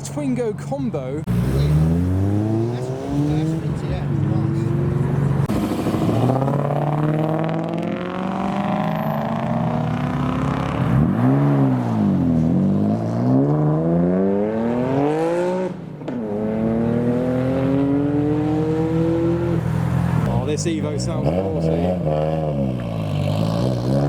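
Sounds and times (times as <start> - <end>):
car engine revving and accelerating: 1.2 - 24.0.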